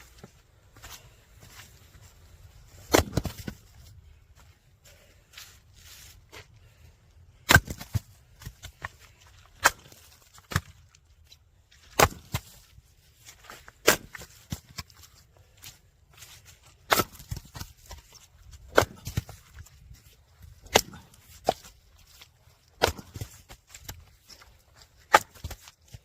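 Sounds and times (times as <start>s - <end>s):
axe chopping firewood: 2.7s - 3.7s, 7.3s - 11.0s, 11.8s - 12.7s, 13.3s - 26.0s.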